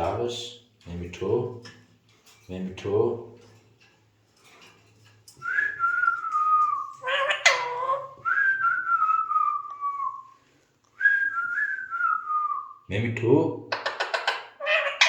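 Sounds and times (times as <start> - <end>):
parrot whistling: 5.4 - 10.3
parrot harsh call: 6.9 - 8.2, 13.8 - 15.0.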